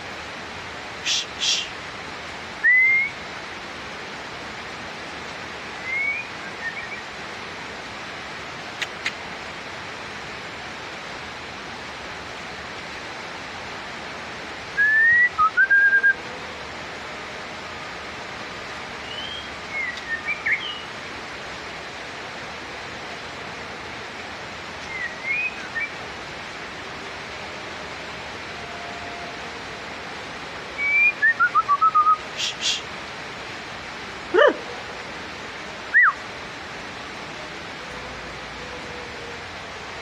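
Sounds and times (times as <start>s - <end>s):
steady hiss: 0.0s - 40.0s
bird whistling clear notes: 2.6s - 3.2s, 5.8s - 7.0s, 35.9s - 36.2s.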